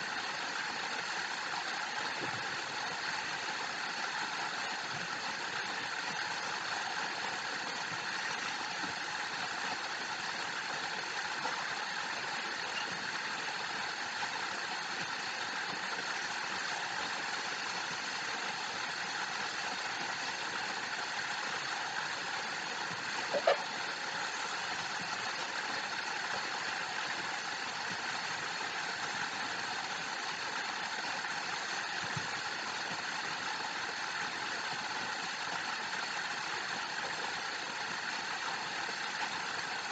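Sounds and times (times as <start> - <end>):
waterfall rushing: 16.9 - 28.9.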